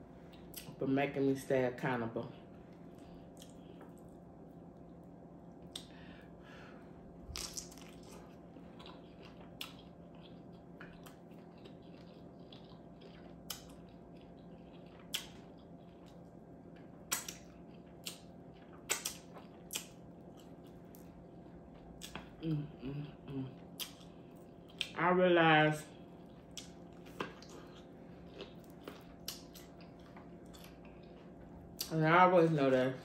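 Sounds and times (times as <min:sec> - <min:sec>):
faint steady hum: 0:00.0 - 0:33.0
wet chewing: 0:02.9 - 0:04.2, 0:07.3 - 0:22.5, 0:23.6 - 0:25.0, 0:25.9 - 0:31.9
mouth smacks and clicks: 0:18.9 - 0:19.9, 0:23.8 - 0:24.0.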